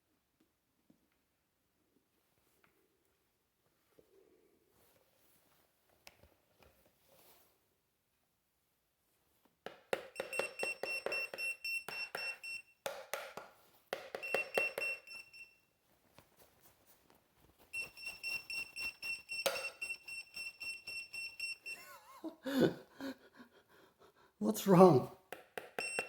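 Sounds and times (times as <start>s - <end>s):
high-pitched electronic alarm beeping: 10.2s - 12.7s, 14.2s - 15.6s, 17.8s - 21.9s, 25.8s - 26.0s.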